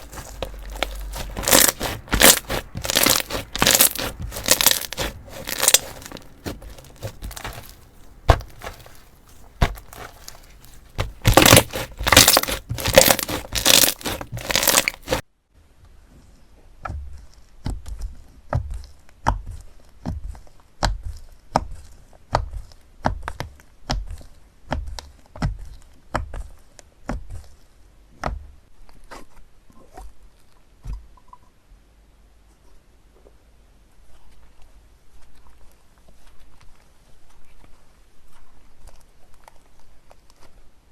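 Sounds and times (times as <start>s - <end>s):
slime crackling and tearing: 0.0s - 15.2s
slime popping and clicking: 11.0s - 15.2s.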